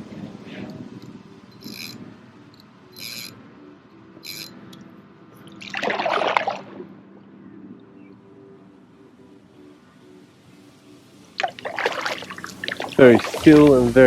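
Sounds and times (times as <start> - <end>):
paddle splashing water: 5.6 - 6.8, 11.4 - 14.0.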